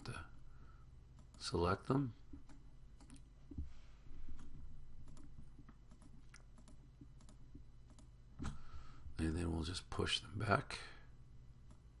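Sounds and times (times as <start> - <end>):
faint low hum: 0.0 - 12.0
computer mouse clicks: 2.3 - 3.3, 4.4 - 8.6.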